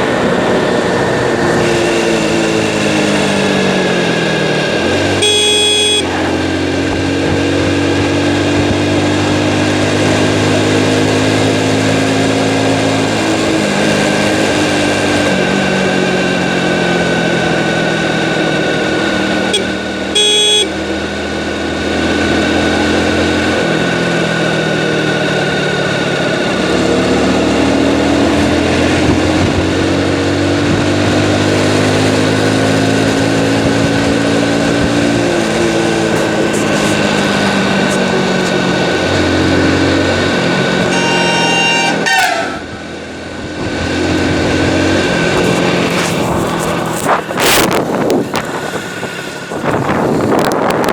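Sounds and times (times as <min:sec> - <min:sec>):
motorcycle engine running: 0:00.0 - 0:50.9
motorcycle horn: 0:05.0 - 0:06.4, 0:19.4 - 0:20.9, 0:40.8 - 0:43.0.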